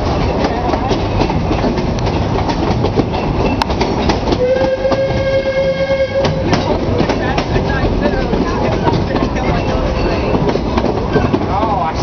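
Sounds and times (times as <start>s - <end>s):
steam train rumble: 0.0s - 12.0s
train wheels clicking over rails: 0.0s - 12.0s
steam whistle blast: 4.4s - 6.5s.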